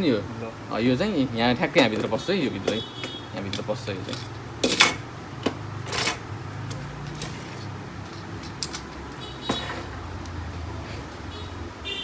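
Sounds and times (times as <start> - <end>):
plastic parts clicking: 1.9 - 10.4
plastic scrape: 1.9 - 11.3.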